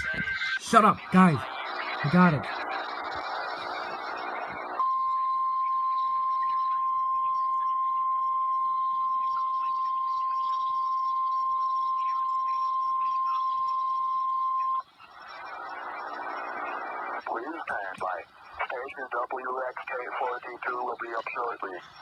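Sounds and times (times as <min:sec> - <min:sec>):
long high alarm tone: 0:04.8 - 0:14.8.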